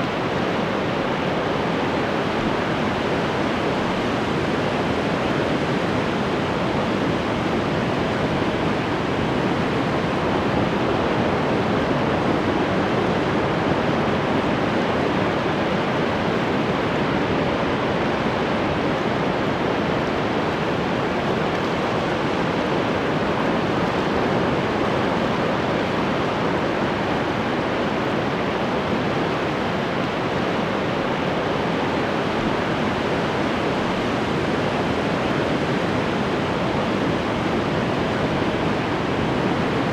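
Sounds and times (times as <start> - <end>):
ocean waves breaking: 13.0 - 37.6.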